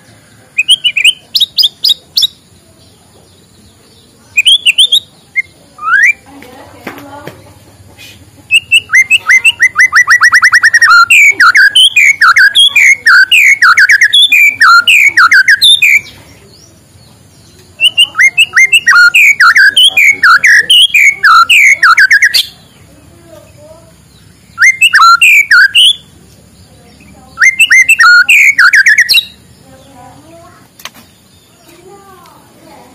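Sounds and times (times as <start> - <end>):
bird singing whistled phrases: 0.6 - 2.4, 4.3 - 6.3, 8.5 - 16.2, 17.7 - 22.7, 24.1 - 26.1, 27.0 - 29.4.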